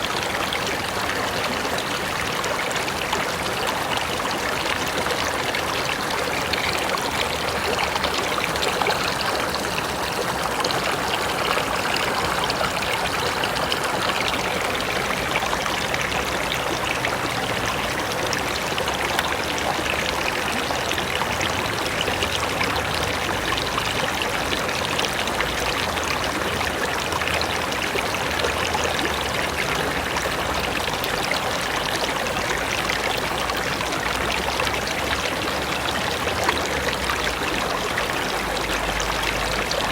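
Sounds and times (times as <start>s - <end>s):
river rushing over rocks: 0.0s - 25.8s.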